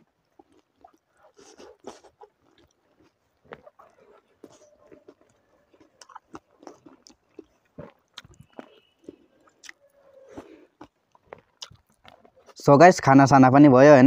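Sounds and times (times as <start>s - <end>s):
person chewing: 0.0s - 12.6s.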